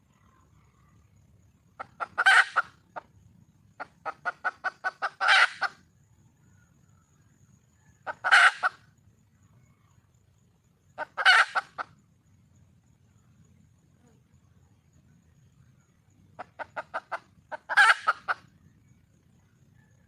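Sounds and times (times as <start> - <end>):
hen clucking and squawking: 1.8 - 3.1, 3.8 - 5.8, 8.0 - 8.8, 11.0 - 11.9, 16.4 - 18.5.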